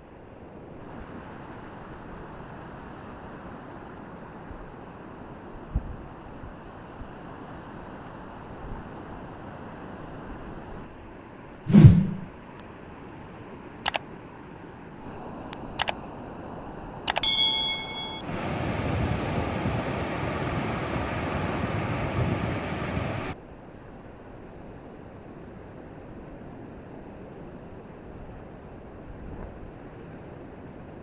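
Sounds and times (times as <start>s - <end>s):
steady rushing noise: 11.7s - 12.3s, 17.9s - 23.4s
sharp clicks: 17.1s - 17.3s.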